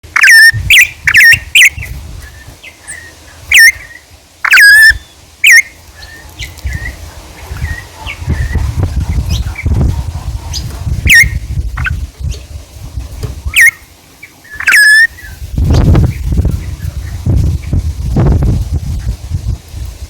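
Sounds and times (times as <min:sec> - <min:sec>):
birds calling sharply: 0:00.1 - 0:12.6, 0:13.4 - 0:17.8
faint bird chirps: 0:00.2 - 0:07.0, 0:13.5 - 0:15.4.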